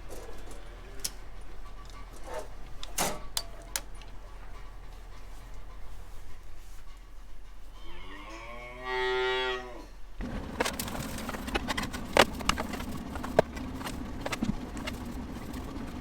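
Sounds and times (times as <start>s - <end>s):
cow mooing: 7.7s - 10.0s
steady hum: 10.0s - 16.0s.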